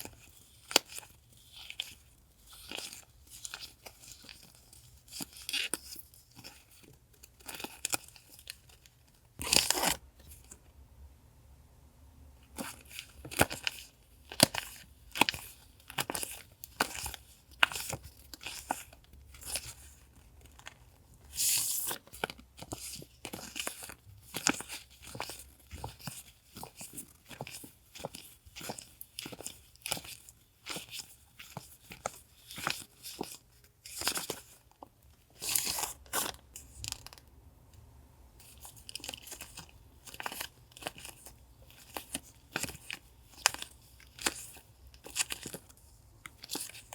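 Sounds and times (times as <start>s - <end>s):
paper and plastic crackling: 12.5s - 37.2s, 38.4s - 46.9s
packaging rustling: 38.4s - 46.9s.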